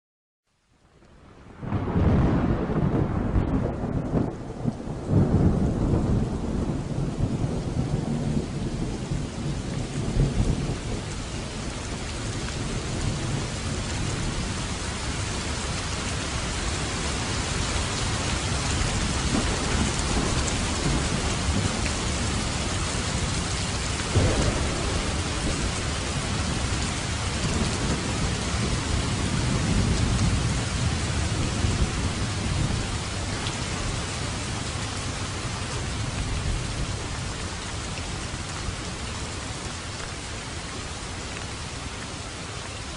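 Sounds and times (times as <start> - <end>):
heavy rain: 0.5 - 42.9
sharp thunderclap: 1.6 - 11.1, 18.9 - 33.0
thunder rolling: 1.6 - 11.7, 18.7 - 33.3.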